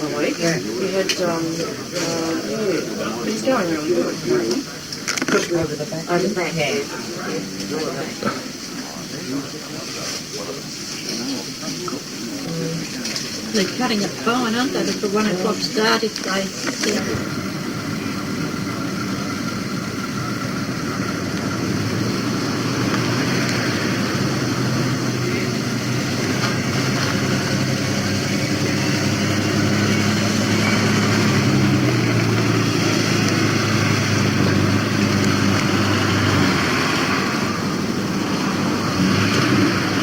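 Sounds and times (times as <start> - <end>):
motorcycle engines running: 16.8 - 40.0.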